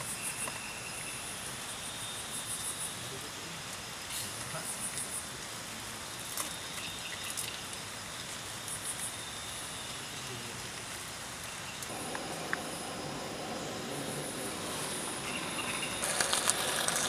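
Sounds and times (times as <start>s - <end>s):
crickets trilling: 0.0s - 17.0s
rain hissing: 3.0s - 17.0s
gas camping stove hissing: 11.8s - 17.0s.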